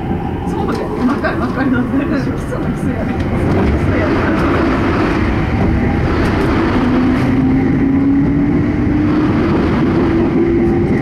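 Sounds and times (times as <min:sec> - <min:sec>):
train passing alongside: 0:00.0 - 0:11.0
wheels rumbling on rail: 0:00.0 - 0:11.0.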